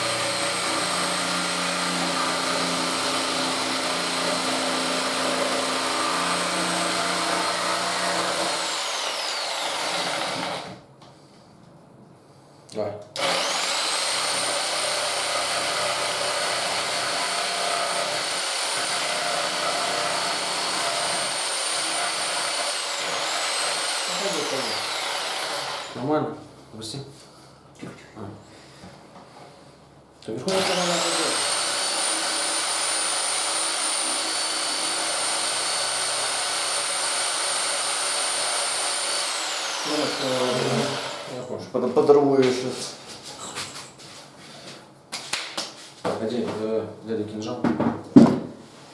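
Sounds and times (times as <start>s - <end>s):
power tool motor whine: 0.0s - 10.8s, 13.2s - 25.9s, 30.5s - 41.4s
person speaking: 30.2s - 31.4s, 39.8s - 43.0s.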